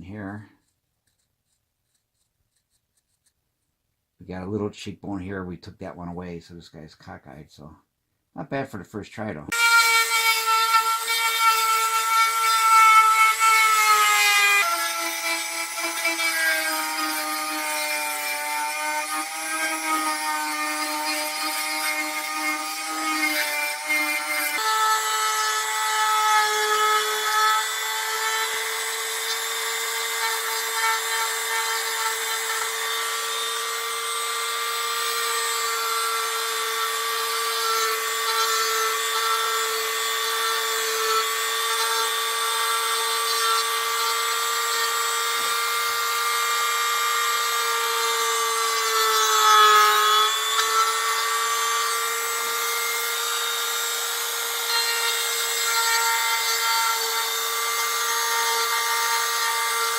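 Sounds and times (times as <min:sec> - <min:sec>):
rotary tool grinding wood: 0:00.0 - 0:03.4, 0:09.5 - 0:59.9.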